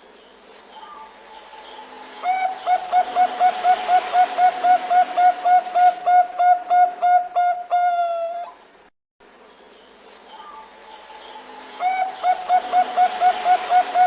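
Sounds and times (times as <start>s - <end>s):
steady hiss: 0.0s - 14.0s
dove cooing: 2.2s - 8.6s, 10.4s - 14.0s.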